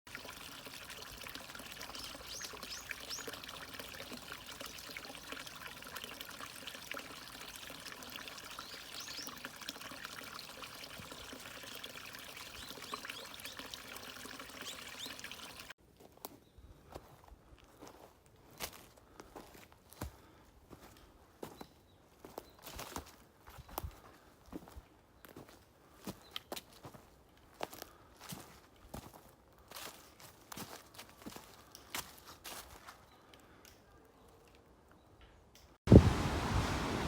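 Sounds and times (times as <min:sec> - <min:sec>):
water trickling and splashing: 0:00.1 - 0:15.8, 0:35.9 - 0:37.0.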